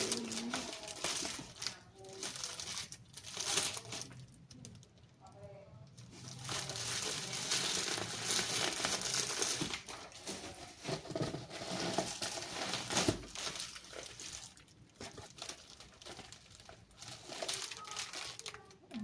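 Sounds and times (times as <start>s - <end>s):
packaging crinkling and rustling: 0.0s - 5.1s, 5.9s - 19.0s.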